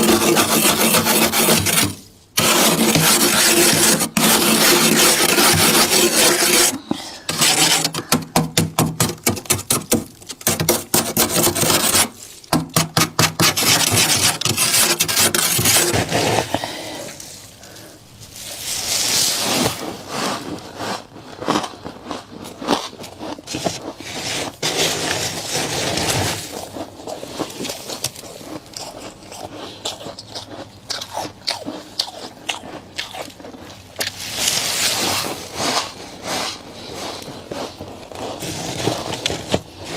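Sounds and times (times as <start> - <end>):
frost being scraped off: 0.0 - 16.7, 23.6 - 26.6, 38.3 - 39.9.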